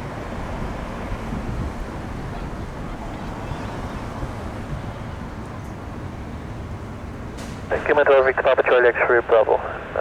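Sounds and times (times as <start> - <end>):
wind buffeting microphone: 0.0 - 6.5.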